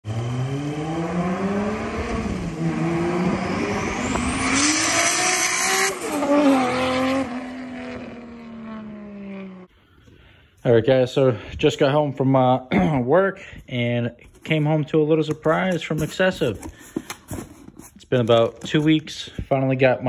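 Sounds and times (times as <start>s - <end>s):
car engine accelerating hard: 0.0s - 9.7s.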